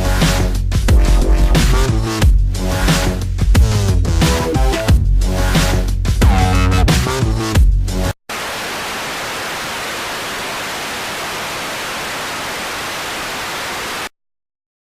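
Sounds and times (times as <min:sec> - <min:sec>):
electronic music: 0:00.0 - 0:03.2, 0:04.2 - 0:07.5
static hiss: 0:08.3 - 0:14.1.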